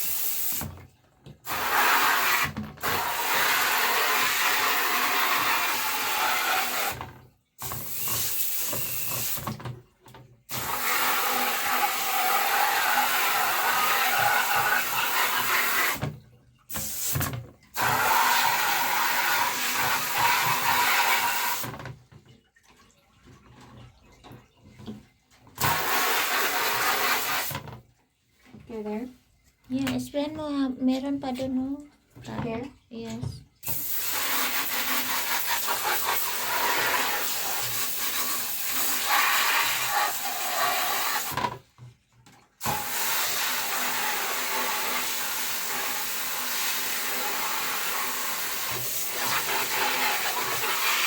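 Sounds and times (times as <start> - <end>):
running water spraying: 0.0 - 0.8, 1.4 - 7.0, 7.6 - 9.6, 10.5 - 16.1, 16.7 - 21.7, 25.6 - 27.6, 32.2 - 41.4, 42.6 - 51.0.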